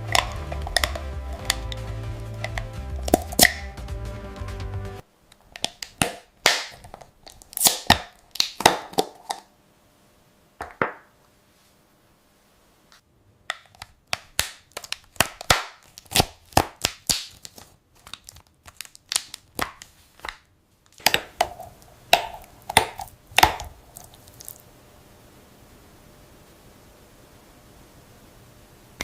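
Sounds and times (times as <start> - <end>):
sharp crunching and cracking: 5.4 - 9.5, 13.5 - 24.6.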